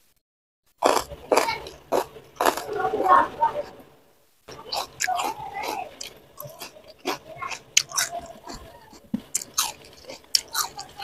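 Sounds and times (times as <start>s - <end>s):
person chewing crunchy food: 0.8s - 2.8s, 4.5s - 11.0s.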